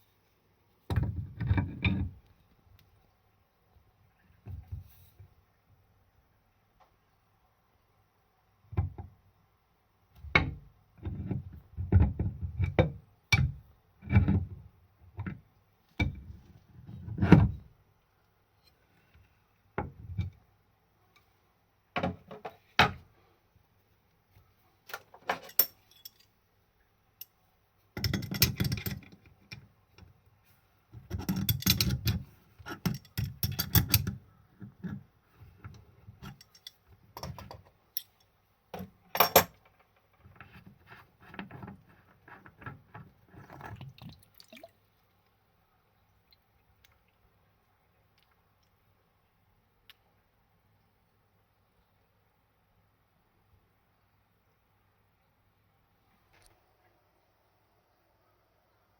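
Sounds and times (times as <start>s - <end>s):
metallic clinking and rattling: 25.2s - 26.3s, 31.2s - 34.2s, 36.2s - 38.3s.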